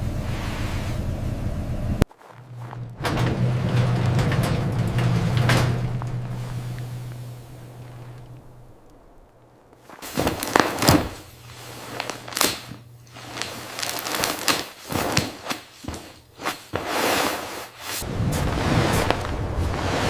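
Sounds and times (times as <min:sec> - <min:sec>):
faint low hum: 0:00.0 - 0:16.8
irregular knocks and clicks: 0:02.4 - 0:09.9.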